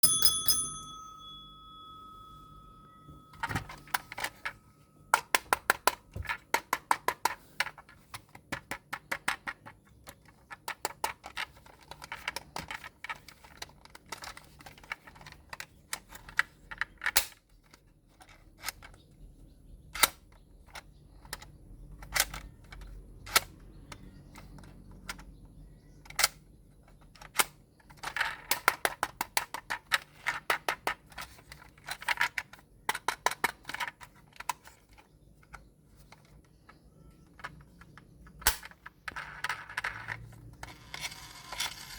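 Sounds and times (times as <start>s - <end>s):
faint steady tone: 0.0s - 5.5s.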